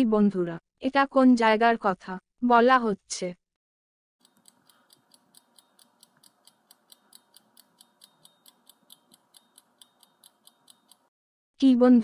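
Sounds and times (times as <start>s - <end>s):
clock ticking: 4.2s - 11.1s.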